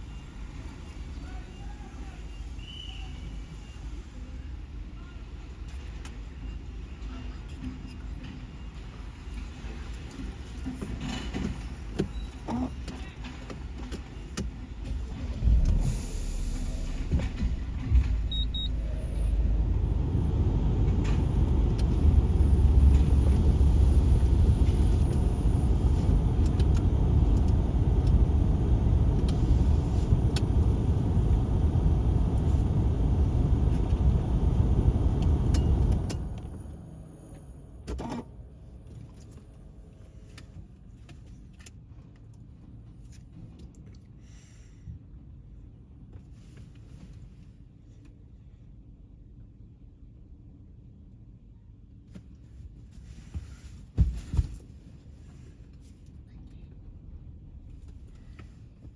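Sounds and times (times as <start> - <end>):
truck engine rumbling: 14.6 - 38.8.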